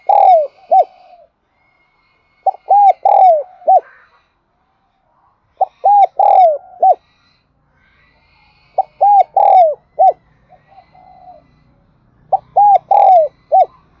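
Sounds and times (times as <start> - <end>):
dove cooing: 0.0 - 1.3, 2.4 - 4.1, 5.6 - 7.0, 8.8 - 11.6, 12.2 - 14.0.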